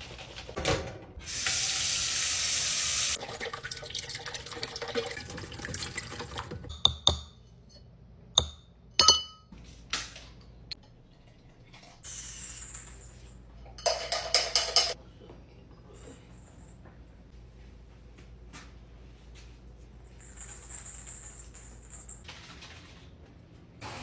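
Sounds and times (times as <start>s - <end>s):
water tap running: 1.2s - 6.7s.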